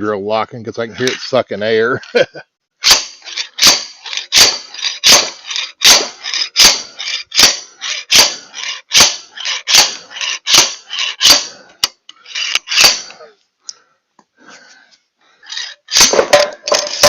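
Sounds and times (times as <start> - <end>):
slide hammer metal clanks: 15.9 - 17.0.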